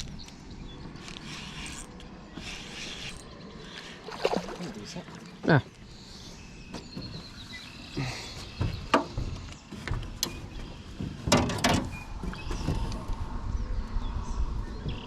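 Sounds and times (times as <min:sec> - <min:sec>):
gear knocking and rattling in boat: 0:08.0 - 0:13.1
low rumble: 0:11.9 - 0:15.0.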